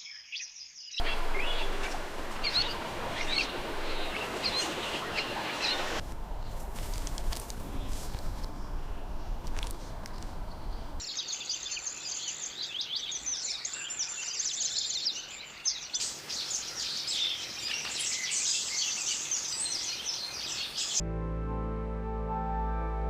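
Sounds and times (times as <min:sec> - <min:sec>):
small birds chirping: 0:00.0 - 0:21.0
low outdoor noise: 0:01.0 - 0:14.0.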